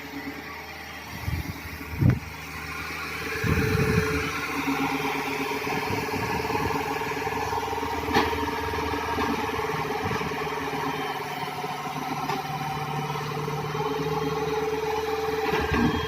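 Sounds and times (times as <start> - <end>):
steady higher tone: 0.0 - 8.0
excavator diesel engine running: 0.0 - 16.0.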